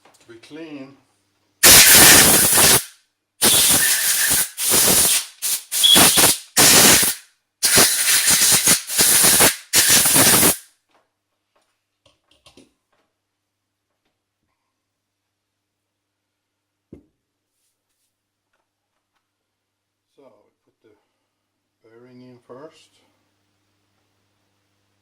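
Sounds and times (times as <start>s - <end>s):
compressed air bursts: 1.6s - 10.6s.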